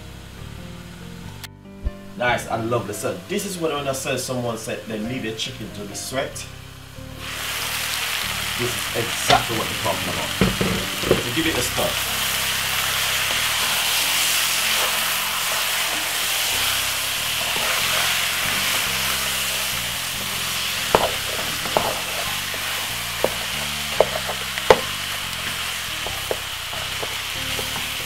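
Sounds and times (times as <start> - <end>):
chicken sizzling in a pot: 2.1 - 28.0
wooden spoon knocking on pot: 10.3 - 11.4, 20.8 - 28.0.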